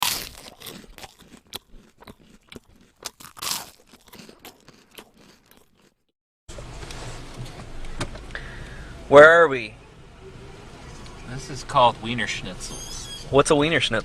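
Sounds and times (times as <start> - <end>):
crunching and chewing crisp food: 0.0 - 6.1.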